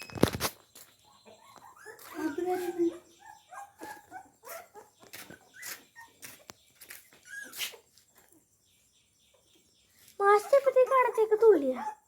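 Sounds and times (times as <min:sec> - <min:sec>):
dog whimpering: 0:01.3 - 0:06.2, 0:10.5 - 0:12.0.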